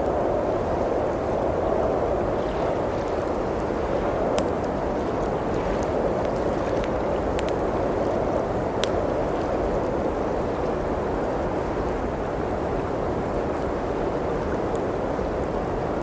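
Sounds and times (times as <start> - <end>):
wood fire crackling: 4.1 - 10.3.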